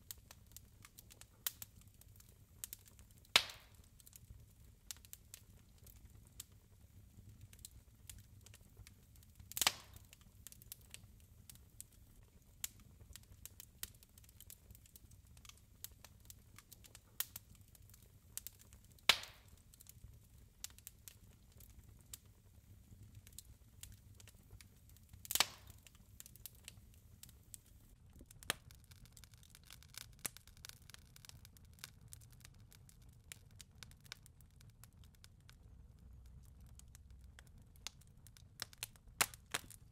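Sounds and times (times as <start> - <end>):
low fire rumble: 0.0 - 39.9
wood fire crackling: 0.0 - 39.9
loud sharp pops from logs: 3.4 - 3.7, 19.1 - 19.4, 25.2 - 25.8.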